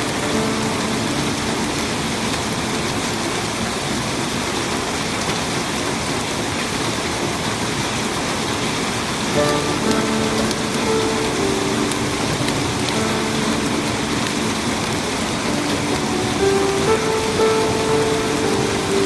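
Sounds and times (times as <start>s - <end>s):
heavy rain falling: 0.0s - 19.0s
faint steady tones: 9.4s - 19.0s.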